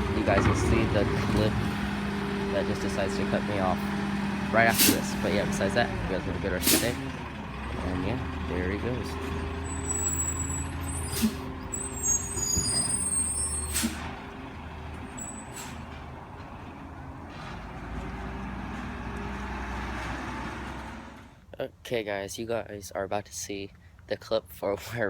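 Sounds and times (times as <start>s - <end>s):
diesel truck engine running: 0.0s - 21.4s
air brake hisses: 4.8s - 5.2s, 6.6s - 7.0s, 9.9s - 14.1s, 15.3s - 15.8s
high brake squeaks: 9.2s - 14.1s, 15.1s - 16.0s.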